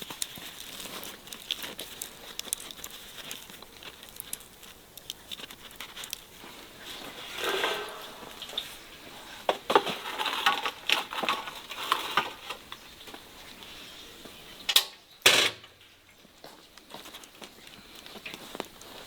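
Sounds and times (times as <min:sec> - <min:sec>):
dishes and utensils clattering: 0:06.9 - 0:12.4.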